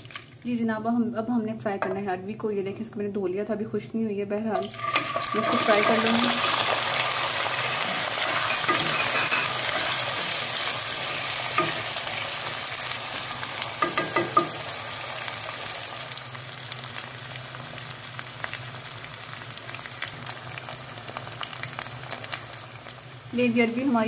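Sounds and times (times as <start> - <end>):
vegetables sizzling in hot oil: 4.6 - 24.0
spatula knocking against pan: 13.8 - 14.6.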